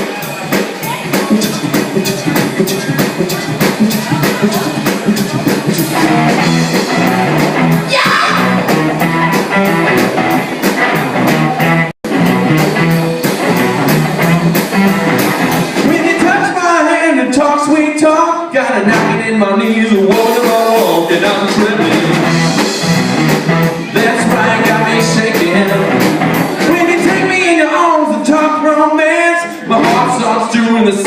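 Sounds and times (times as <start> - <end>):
person singing: 0.0 - 6.4, 23.7 - 31.0
rock and roll band playing: 0.0 - 31.0.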